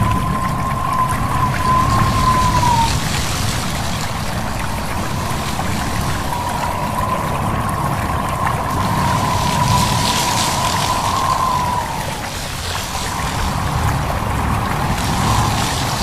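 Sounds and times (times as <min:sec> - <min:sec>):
thin high tone: 0:00.0 - 0:03.0
running stream: 0:00.0 - 0:16.0
wind rushing: 0:00.0 - 0:16.0.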